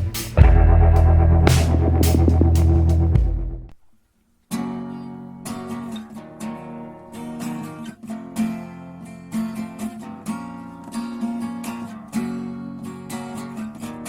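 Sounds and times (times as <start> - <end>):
acoustic guitar strumming chords: 0.0 - 3.8.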